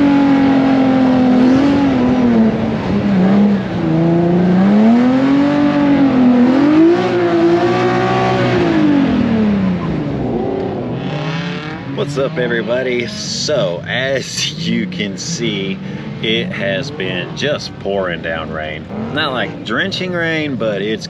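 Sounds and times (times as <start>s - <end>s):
car engine revving high: 0.0s - 21.0s.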